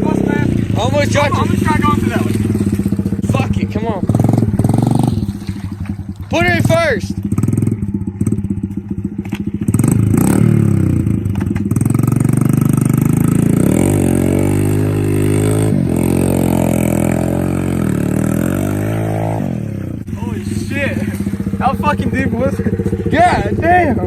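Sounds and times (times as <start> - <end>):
off-road engine revving: 0.0 - 24.0
tyres churning through mud: 0.0 - 24.0
clatter: 7.1 - 13.5.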